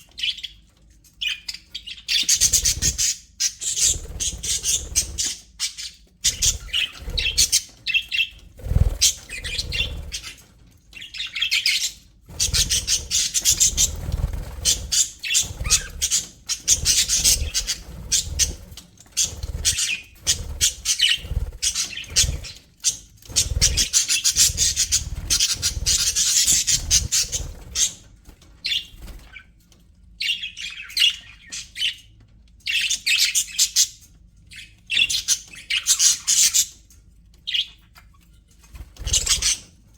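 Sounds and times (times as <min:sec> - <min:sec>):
budgerigars chattering and chirping: 0:01.2 - 0:29.5, 0:32.7 - 0:36.8, 0:37.4 - 0:39.7.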